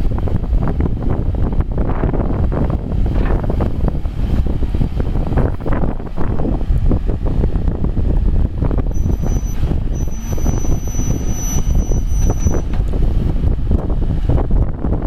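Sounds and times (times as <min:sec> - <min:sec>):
diesel engine rumbling: 0:00.0 - 0:15.0
wind buffeting microphone: 0:00.0 - 0:15.0
thin high whine: 0:08.9 - 0:12.8.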